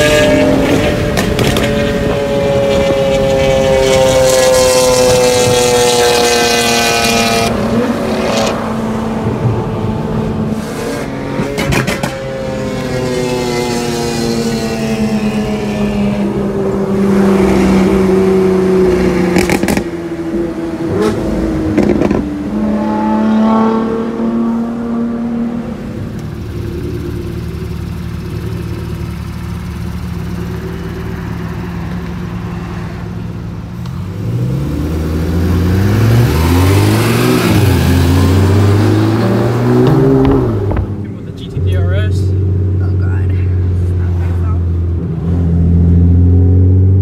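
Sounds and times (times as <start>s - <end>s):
engine accelerating through gears: 0.0s - 42.8s
sports car engines idling: 24.1s - 34.3s, 38.2s - 45.0s.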